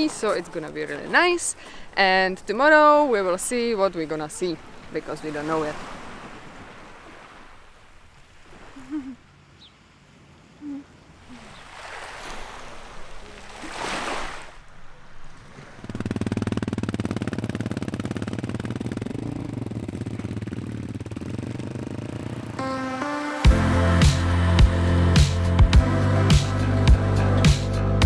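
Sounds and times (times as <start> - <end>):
wave washing in and back: 0.0 - 18.8, 20.8 - 27.8
engine running steadily: 15.8 - 22.8, 23.5 - 28.0.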